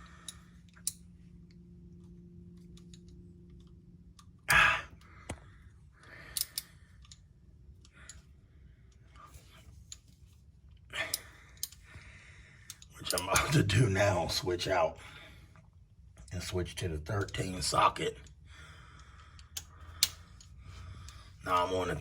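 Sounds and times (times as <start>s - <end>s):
ratchet and sockets clanking: 6.2s - 7.2s.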